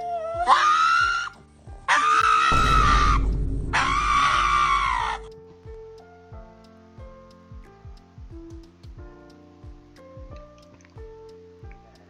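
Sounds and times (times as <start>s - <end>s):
dog screaming: 0.0s - 3.0s, 3.7s - 5.3s
background music with beat: 2.5s - 12.0s.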